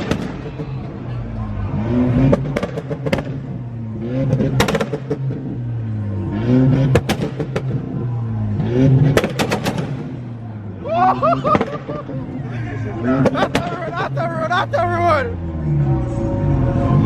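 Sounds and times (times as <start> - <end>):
car engine revving: 0.0 - 17.0
sharp cracks: 9.2 - 10.2.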